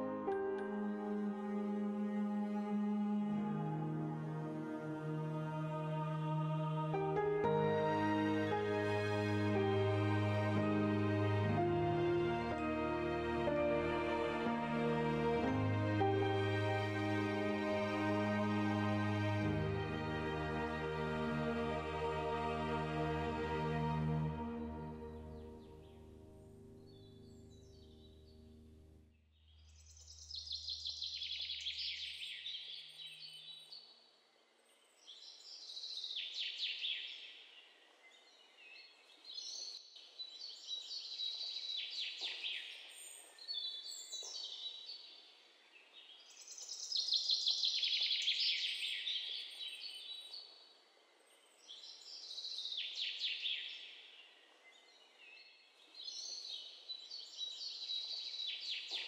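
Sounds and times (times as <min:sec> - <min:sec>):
low music notes: 0:00.0 - 0:29.0.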